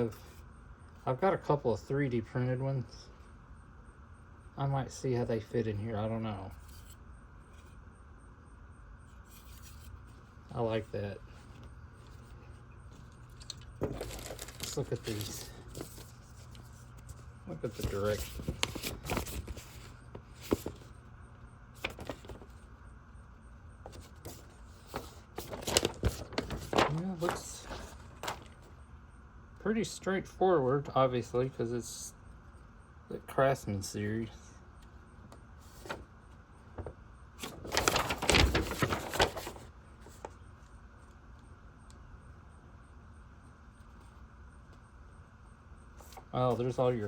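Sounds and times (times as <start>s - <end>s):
faint room hum: 0.0s - 47.0s
paper sheet rustling: 9.2s - 21.0s, 21.8s - 22.6s, 23.8s - 28.8s, 35.6s - 40.4s.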